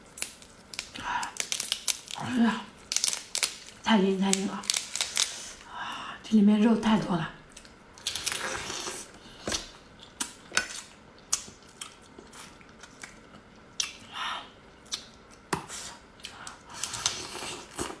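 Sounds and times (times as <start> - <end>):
crab shell cracking: 0.1 - 5.7
chewing: 7.5 - 18.0.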